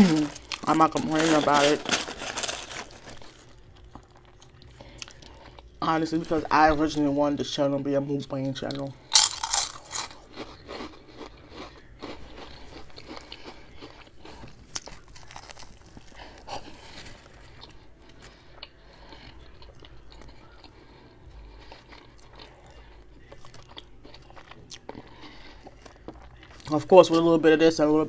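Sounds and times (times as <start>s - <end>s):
crunching snack chip: 0.0s - 4.5s, 9.1s - 20.7s
chewing soft bread roll: 9.5s - 27.3s.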